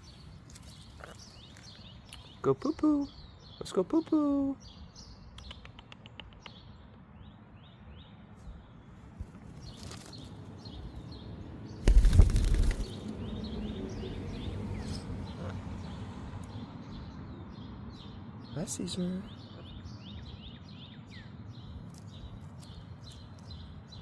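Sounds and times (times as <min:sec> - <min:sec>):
birds chirping: 0:00.0 - 0:24.0
loud rustling burst: 0:11.8 - 0:13.1.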